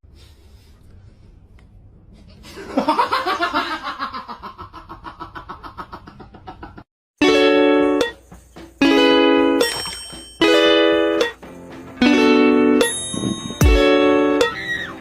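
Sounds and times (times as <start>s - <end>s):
person laughing hard: 2.5s - 6.8s.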